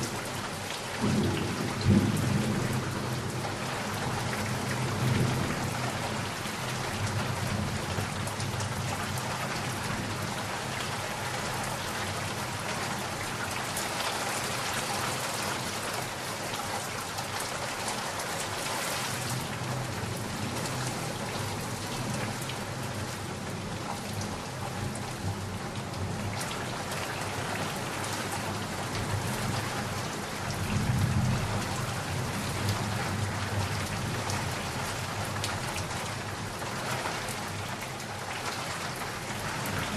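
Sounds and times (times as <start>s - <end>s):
rain falling: 0.0s - 39.9s
low thunder rumbling: 1.0s - 6.4s.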